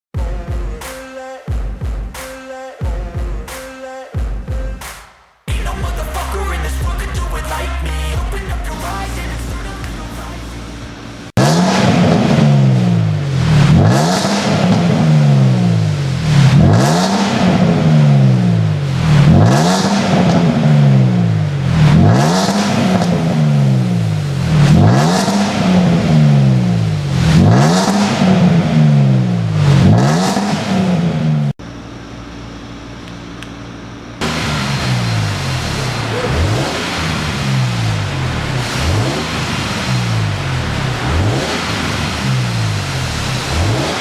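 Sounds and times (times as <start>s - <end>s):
engine idling: 5.5s - 27.3s, 31.6s - 44.0s
car engine revving: 5.5s - 31.6s, 34.2s - 44.0s.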